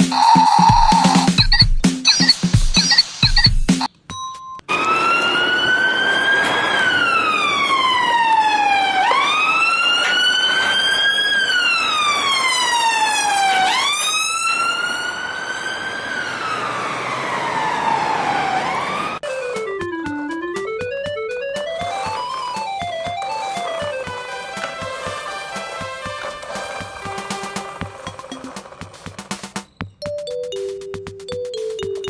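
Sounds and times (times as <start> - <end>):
wailing siren: 0.0 - 1.4, 4.7 - 29.2
short steady beep: 0.1 - 4.6.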